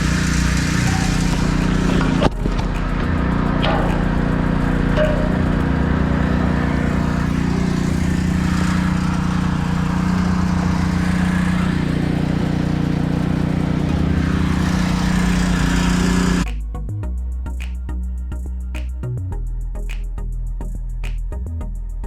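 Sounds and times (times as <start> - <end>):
small engine running: 0.0 - 16.5.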